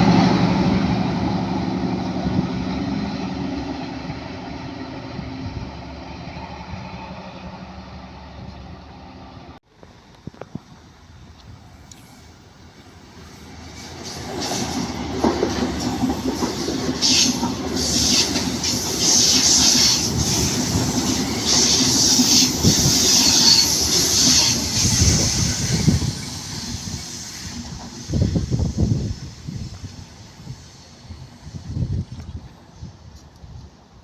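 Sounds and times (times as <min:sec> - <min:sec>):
train passing on rails: 0:00.0 - 0:34.0.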